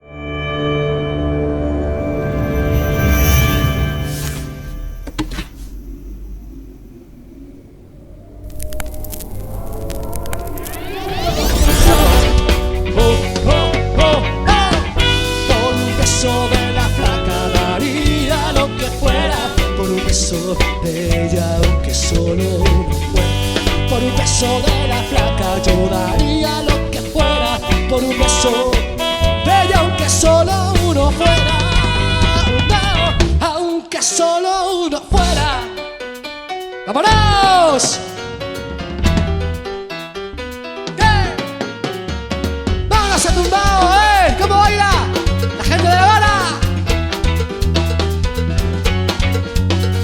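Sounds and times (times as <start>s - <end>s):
band playing upbeat music: 11.6s - 50.0s.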